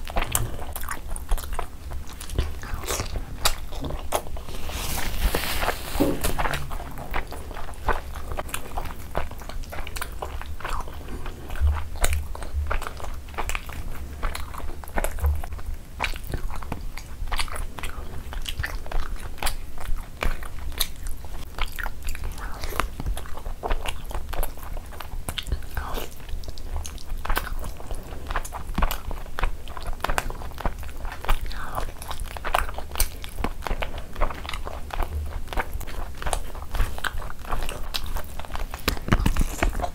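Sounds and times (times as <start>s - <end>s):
steady low hum: 0.0s - 39.9s
wet chewing mouth sounds: 0.0s - 39.9s.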